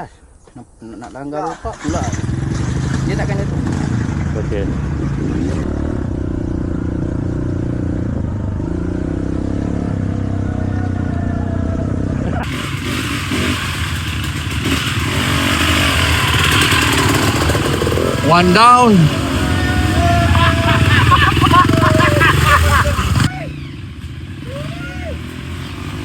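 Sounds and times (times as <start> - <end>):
dirt bike engines revving: 1.1 - 26.0.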